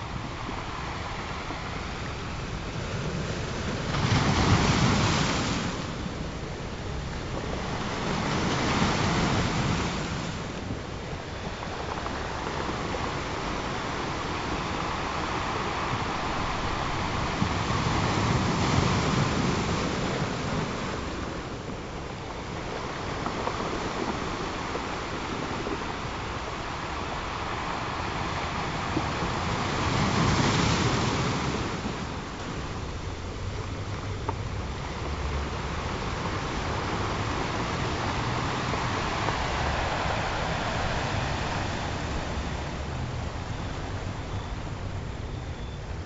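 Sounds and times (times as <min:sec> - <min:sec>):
ocean waves washing in: 0:00.0 - 0:46.0.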